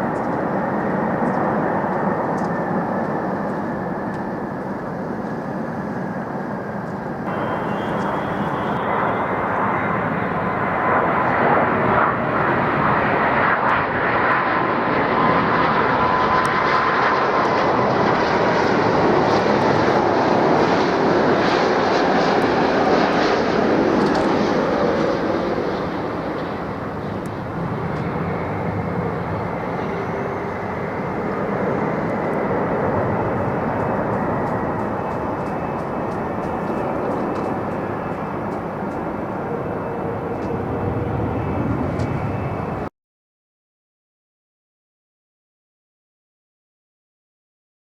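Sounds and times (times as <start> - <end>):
jet airliner flying past: 0.0 - 42.9.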